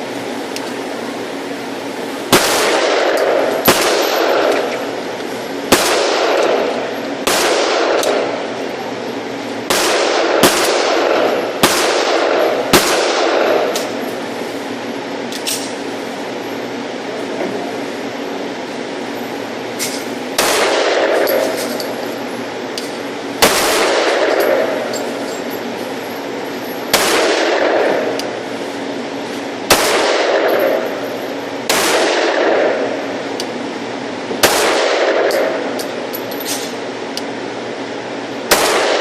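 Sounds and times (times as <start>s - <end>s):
pistol shots echoing: 2.3s - 4.9s, 5.7s - 8.4s, 9.7s - 14.0s, 20.4s - 21.6s, 23.4s - 25.2s, 26.9s - 28.3s, 29.7s - 31.0s, 31.7s - 33.0s, 34.4s - 35.8s, 38.5s - 39.0s.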